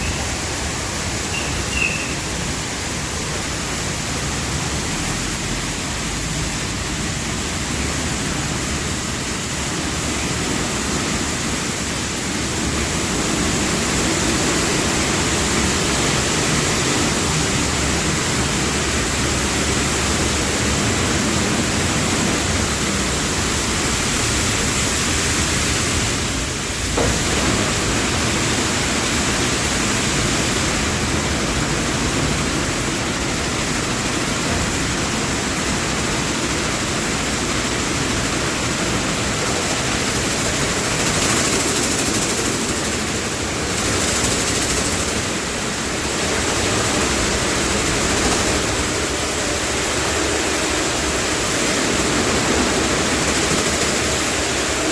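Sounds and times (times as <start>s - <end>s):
car wash rushing noise: 0.0s - 54.9s.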